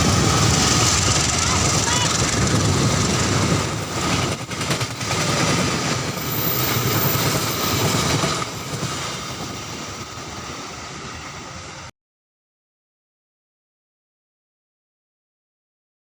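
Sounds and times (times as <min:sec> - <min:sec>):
train wheels clacking on rails: 0:00.0 - 0:10.8.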